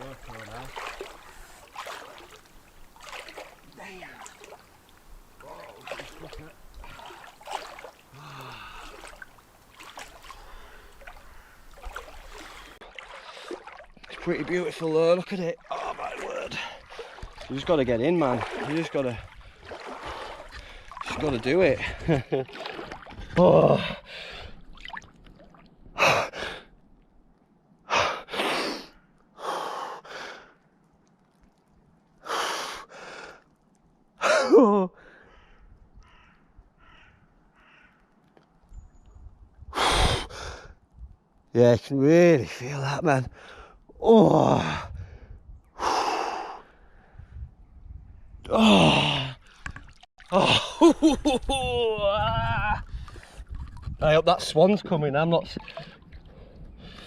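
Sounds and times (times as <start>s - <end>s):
water sloshing and splashing: 0.0s - 26.0s, 30.5s - 32.3s, 48.7s - 51.6s, 52.7s - 57.0s
man gasping hard: 8.1s - 9.1s
man groaning: 34.2s - 35.0s, 44.0s - 44.8s, 48.5s - 49.4s
person groaning: 48.5s - 49.4s.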